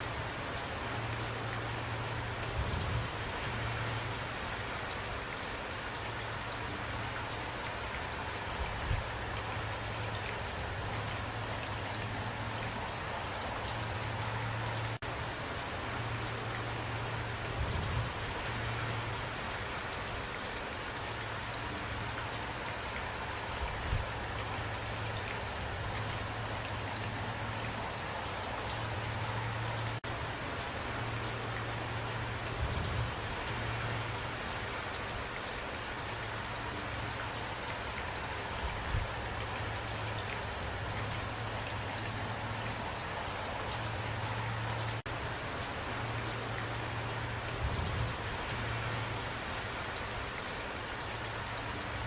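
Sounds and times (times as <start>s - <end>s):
rain falling: 0.0s - 52.0s.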